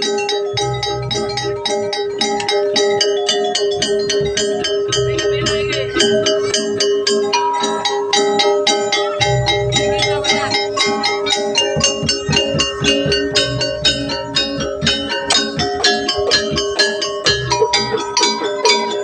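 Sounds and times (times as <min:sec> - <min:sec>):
low drum beats: 0:03.7 - 0:06.8, 0:09.2 - 0:18.8.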